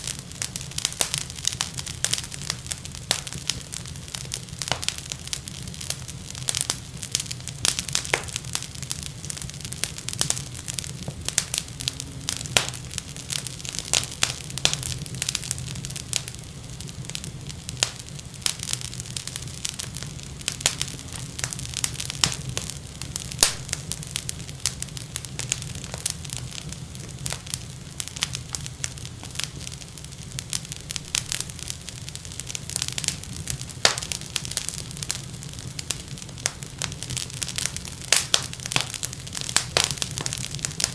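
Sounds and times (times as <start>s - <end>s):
wood fire crackling and popping: 0.0s - 40.9s.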